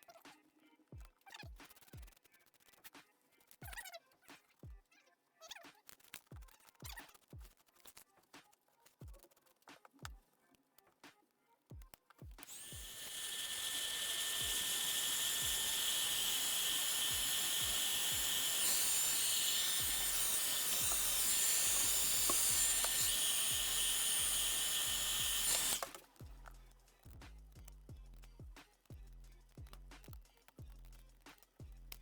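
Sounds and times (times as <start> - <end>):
electric tool hissing whine: 12.4 - 26.4.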